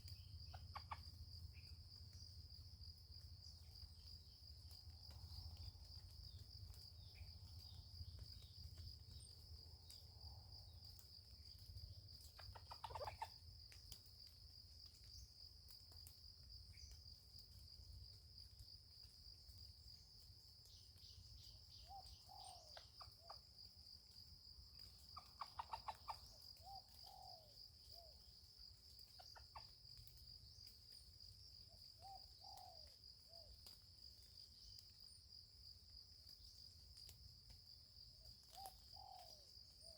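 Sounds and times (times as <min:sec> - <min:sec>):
chickens clucking: 0:12.4 - 0:13.3, 0:25.2 - 0:26.2.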